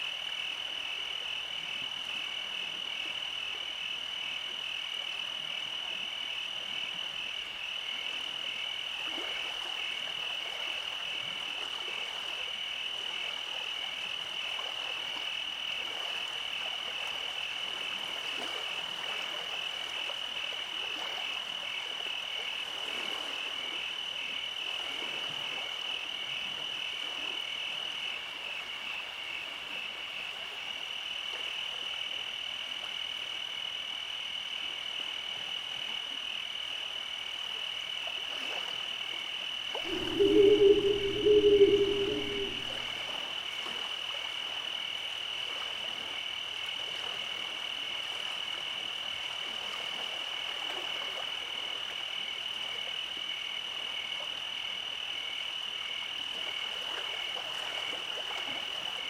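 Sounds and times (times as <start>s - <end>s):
frogs croaking: 39.9s - 43.0s
pulsing insect trill: 39.9s - 43.0s.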